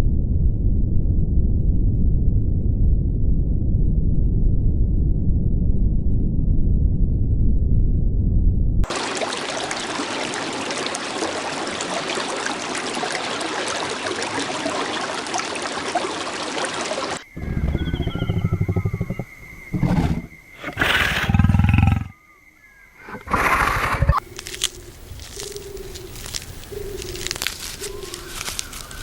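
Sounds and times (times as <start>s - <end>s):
faint bird chirps: 17.2s - 23.2s
big cat roaring: 17.3s - 22.2s
steady hiss: 24.2s - 29.0s.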